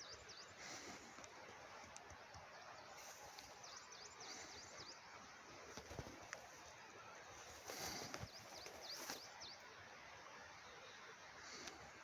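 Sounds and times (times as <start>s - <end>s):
faint outdoor ambience: 0.0s - 12.0s
bird chirping: 7.7s - 9.7s.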